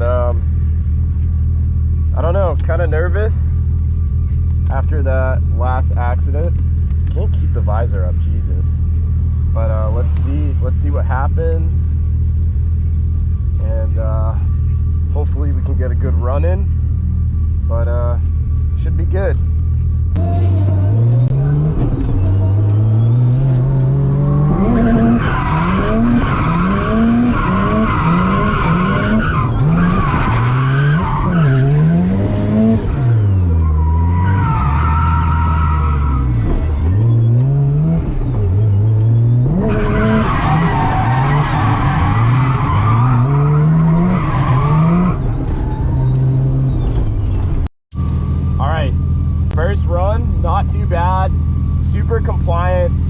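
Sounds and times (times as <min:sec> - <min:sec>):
rotary engine revving: 0:20.1 - 0:47.7.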